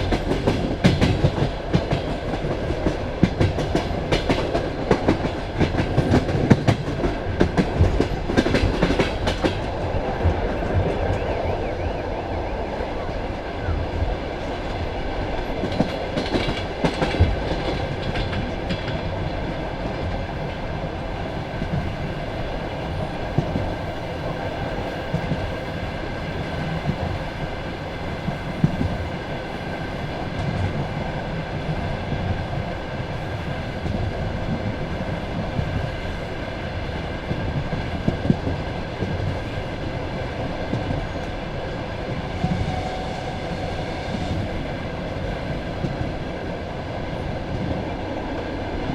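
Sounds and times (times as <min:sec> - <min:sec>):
clacks over rail joints: 0:00.0 - 0:11.3, 0:14.6 - 0:19.2
train wheels rumbling on rail: 0:00.0 - 0:48.9.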